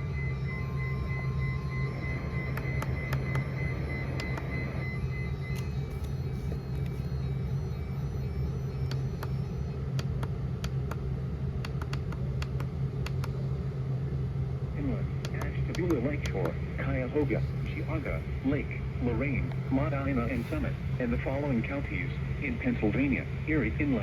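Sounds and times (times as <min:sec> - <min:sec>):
radio hum and static hiss: 0:00.0 - 0:24.0
radio crackles: 0:00.5 - 0:07.8, 0:14.8 - 0:23.0.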